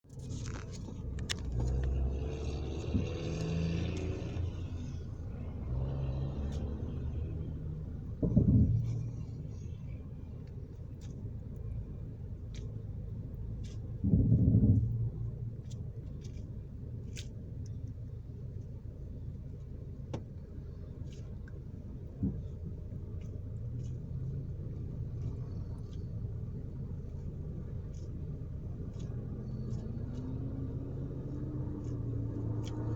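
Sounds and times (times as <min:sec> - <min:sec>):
car engine and road rumble: 0:00.0 - 0:32.9
short low thump: 0:02.8 - 0:03.6, 0:08.1 - 0:09.4, 0:14.0 - 0:15.3.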